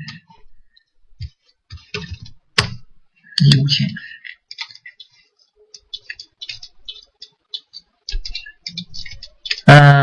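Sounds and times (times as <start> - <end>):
computer keyboard typing: 4.4 - 9.7.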